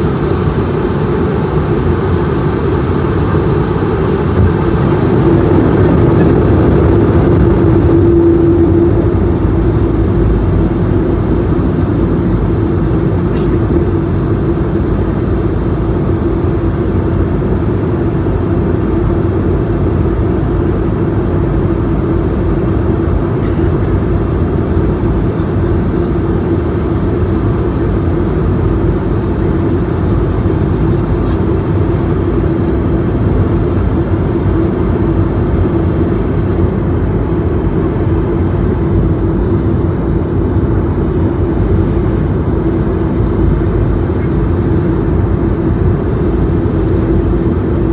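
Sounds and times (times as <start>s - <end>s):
airflow over fuselage: 0.0s - 47.9s
airplane cabin engine rumble: 0.0s - 47.9s
steady low hum: 0.0s - 47.9s.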